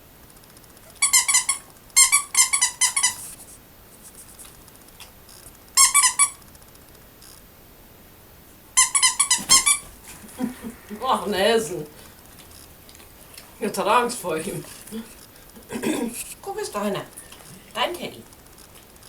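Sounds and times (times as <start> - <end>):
squeaky toy squeaks: 0.9 - 3.4, 5.8 - 6.4, 8.8 - 9.9.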